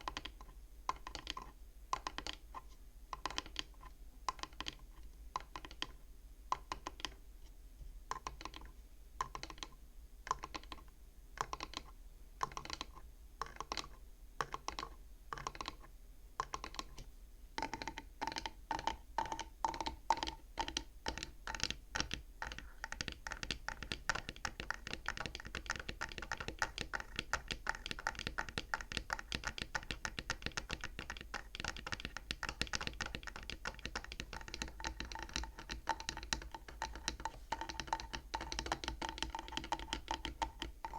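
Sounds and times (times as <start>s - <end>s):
tapping on wooden abacus frame: 0.0s - 2.4s, 3.1s - 4.8s, 5.4s - 7.2s, 8.1s - 40.9s.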